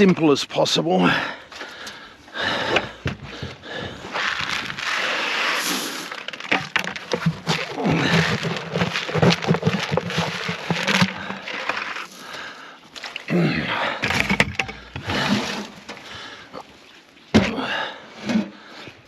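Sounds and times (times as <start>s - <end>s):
calf feed rustling and crackling: 4.1s - 13.3s.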